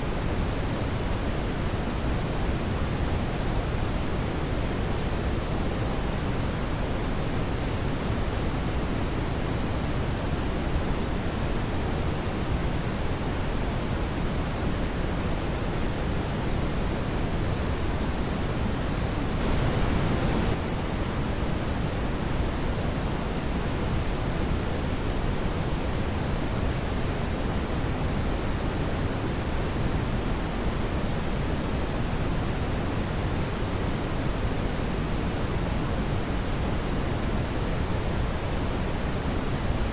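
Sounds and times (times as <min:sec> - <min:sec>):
brighter hiss: 0:19.2 - 0:23.6
deep rushing brown noise: 0:19.3 - 0:20.6.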